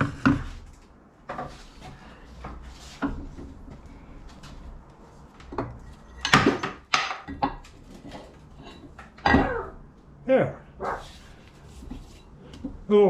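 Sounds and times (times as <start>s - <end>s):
metal rubbing on work surface: 10.8s - 12.4s.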